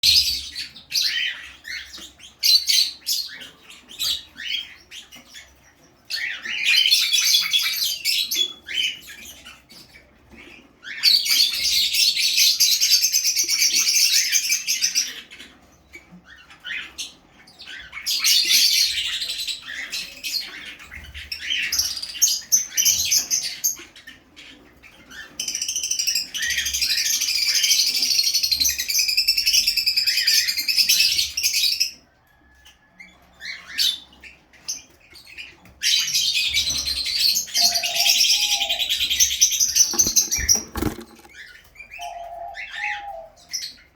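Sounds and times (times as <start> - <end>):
lovebirds chattering: 33.1 - 43.9.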